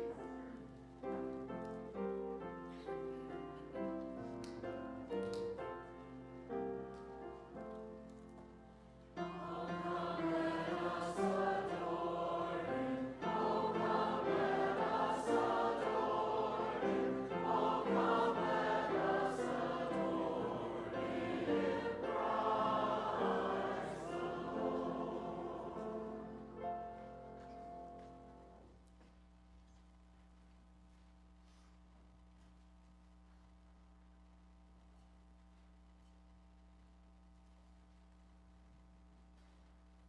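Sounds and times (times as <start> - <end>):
congregation singing a hymn: 9.2 - 28.1.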